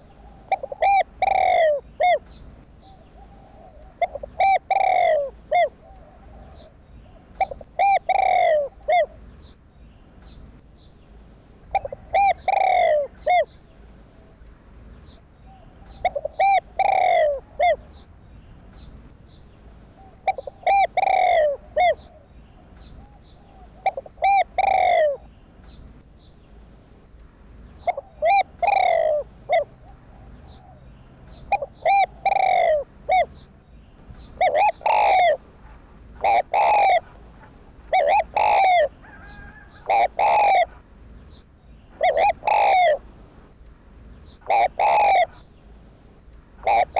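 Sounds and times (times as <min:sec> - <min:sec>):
dove cooing: 0:00.0 - 0:09.2, 0:11.7 - 0:13.6, 0:15.4 - 0:18.0, 0:20.0 - 0:25.3, 0:27.8 - 0:33.4, 0:34.2 - 0:40.8, 0:41.9 - 0:43.2, 0:44.4 - 0:45.5, 0:46.6 - 0:46.9.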